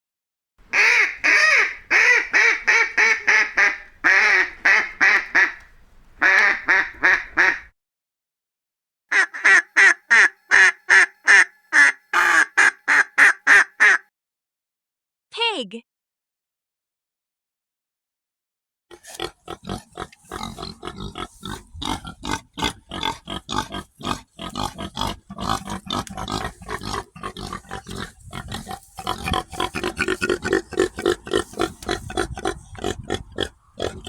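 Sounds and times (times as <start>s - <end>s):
pig grunting and oinking: 18.9s - 34.0s.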